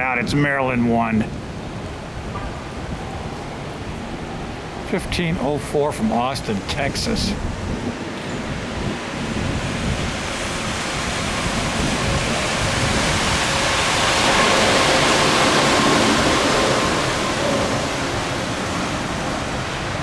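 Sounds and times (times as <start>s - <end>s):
jet engine roar overhead: 0.0s - 20.0s.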